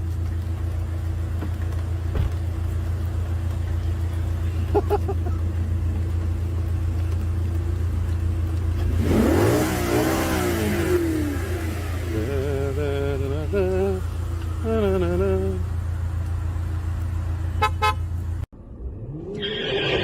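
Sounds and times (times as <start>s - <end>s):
car engine and road drone: 0.0s - 20.0s
engine revving: 8.7s - 15.9s.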